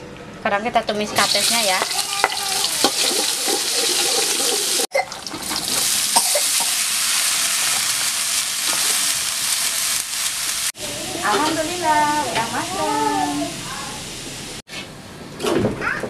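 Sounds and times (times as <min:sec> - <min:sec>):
vegetables sizzling in a wok: 0:01.1 - 0:14.6
spatula stirring in a wok: 0:01.2 - 0:10.7.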